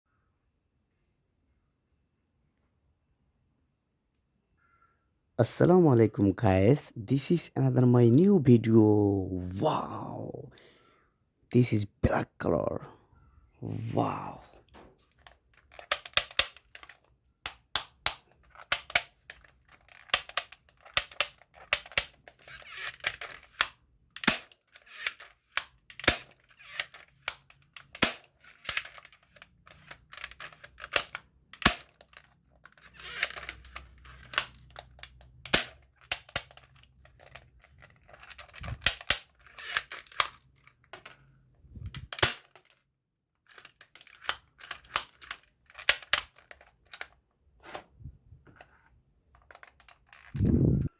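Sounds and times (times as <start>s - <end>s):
plastic rattling and scraping: 14.7s - 42.8s, 43.4s - 50.9s
toy gun parts clicking: 15.0s - 41.3s, 41.9s - 42.8s, 43.4s - 47.2s, 48.5s - 50.6s.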